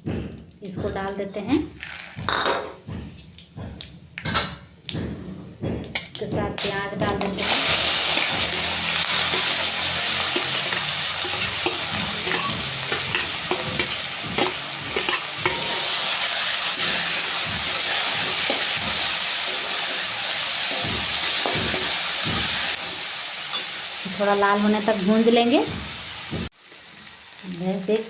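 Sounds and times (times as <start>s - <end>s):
spatula knocking and scraping pan: 1.8s - 23.8s
onions sizzling in hot oil: 7.4s - 28.0s.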